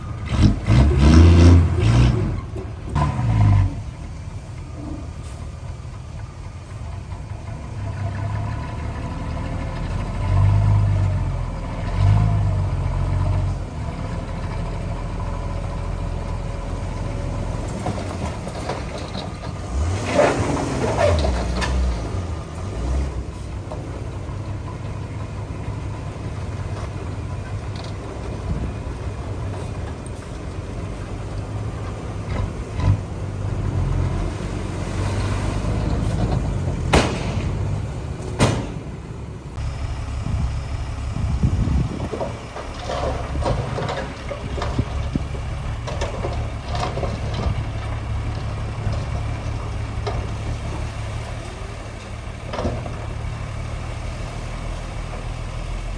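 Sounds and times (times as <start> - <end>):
heavy machinery diesel engine: 0.0 - 55.9
sharp metallic knocks: 36.9 - 39.0.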